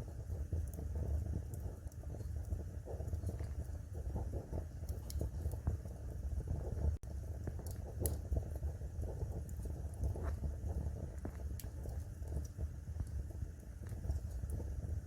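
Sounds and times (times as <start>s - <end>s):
low steady rumble: 0.0s - 15.0s
wood fire crackling: 0.0s - 15.0s
sharp pops of fire: 7.5s - 13.2s.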